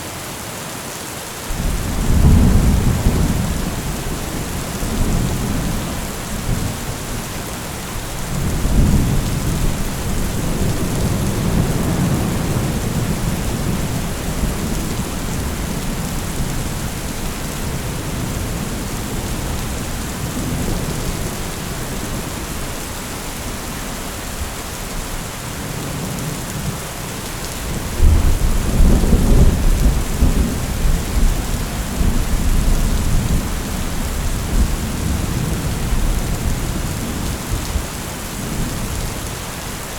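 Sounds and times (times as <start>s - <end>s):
steady rain: 0.0s - 39.9s
thunder rolling: 1.5s - 7.3s.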